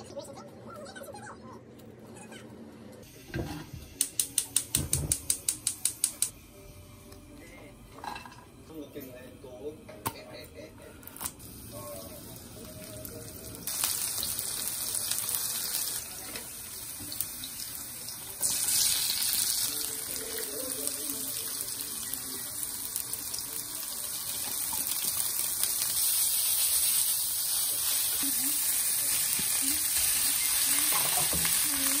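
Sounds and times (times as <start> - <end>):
food frying in a wok: 11.4 - 32.0.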